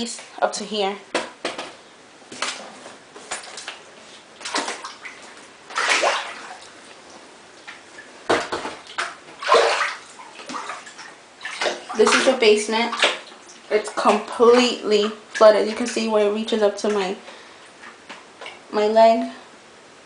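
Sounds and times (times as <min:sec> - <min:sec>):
wading through floodwater: 0:09.4 - 0:16.1.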